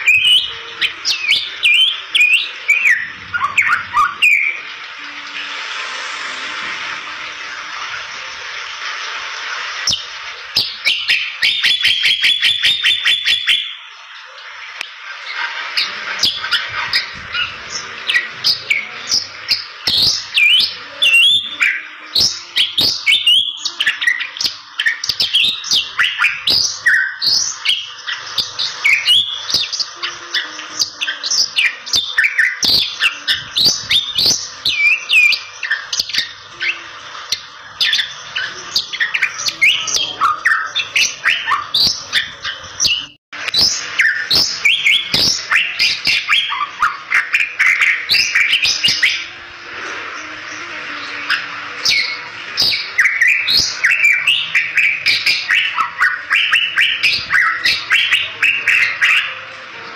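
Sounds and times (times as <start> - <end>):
bird singing chirps and whistles: 0.0 - 5.5, 9.8 - 13.9, 15.2 - 49.4, 50.4 - 59.5
steady hiss: 0.0 - 11.9.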